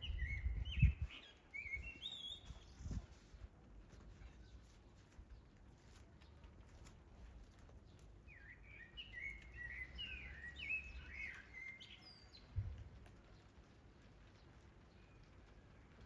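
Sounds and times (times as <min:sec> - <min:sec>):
songbird warbling whistles: 0:00.0 - 0:02.7
light rain hiss: 0:01.0 - 0:16.0.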